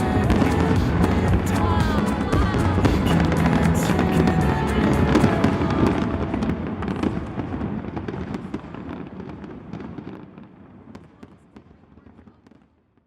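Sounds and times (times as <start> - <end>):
background music: 0.0 - 7.3
fireworks popping and crackling: 0.0 - 13.0.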